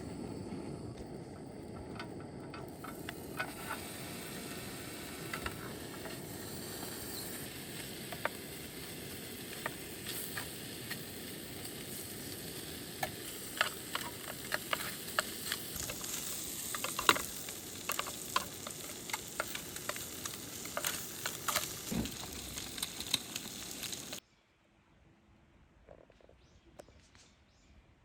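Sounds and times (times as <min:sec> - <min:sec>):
food sizzling in a hot pan: 0:02.6 - 0:24.2.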